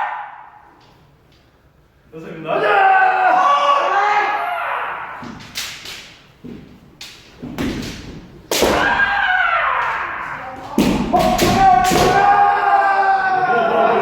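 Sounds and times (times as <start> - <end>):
people shouting: 0.0 - 0.6, 2.5 - 5.4, 8.5 - 14.0
stamping footsteps: 6.4 - 8.9
bamboo sword strikes: 7.0 - 9.2, 10.7 - 12.4.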